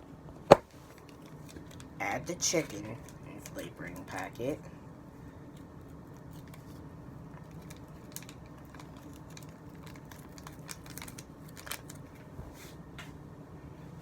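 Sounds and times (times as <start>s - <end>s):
low steady hum: 0.0s - 14.0s
plastic packet crinkling: 6.0s - 12.2s.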